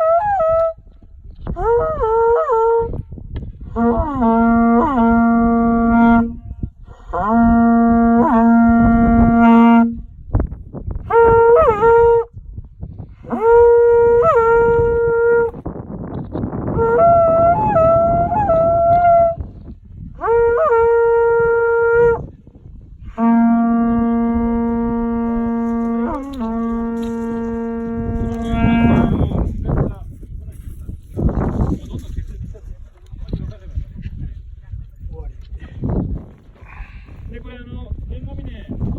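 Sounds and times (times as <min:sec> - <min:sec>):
conch shell trumpet blasts: 0:00.0 - 0:00.9, 0:03.7 - 0:10.2, 0:11.1 - 0:12.3, 0:13.3 - 0:15.6, 0:16.7 - 0:19.5, 0:20.2 - 0:22.3, 0:23.0 - 0:29.6.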